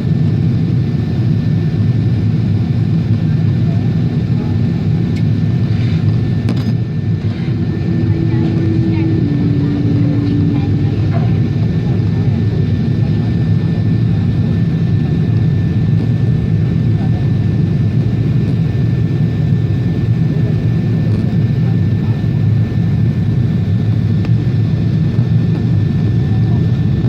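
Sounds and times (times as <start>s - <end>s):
airliner cabin engine rush: 0.0s - 27.0s
faint thin whine: 5.5s - 13.9s.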